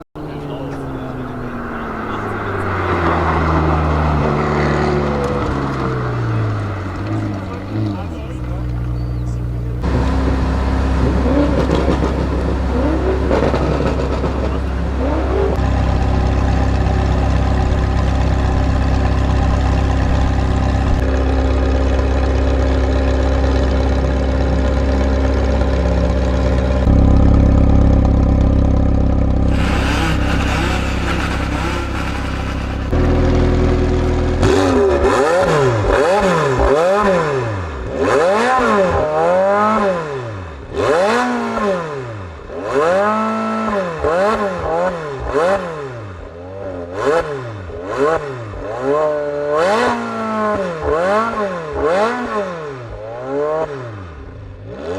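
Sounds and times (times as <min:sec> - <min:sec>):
sports car engine revving: 0:00.2 - 0:54.9.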